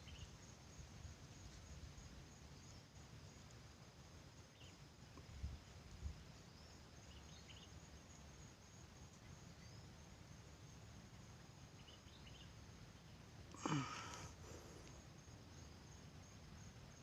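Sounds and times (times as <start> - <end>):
faint bird chirps: 0.0 - 0.5, 4.4 - 8.2, 9.1 - 10.3, 11.2 - 16.4
high insect drone: 0.0 - 17.0.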